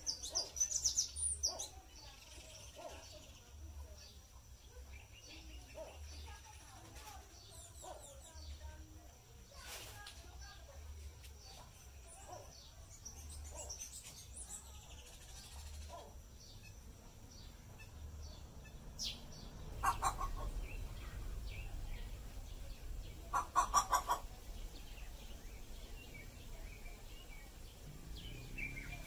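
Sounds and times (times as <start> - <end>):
small birds chirping: 0.0 - 29.0
bird cackling calls: 19.8 - 21.1, 23.2 - 24.7.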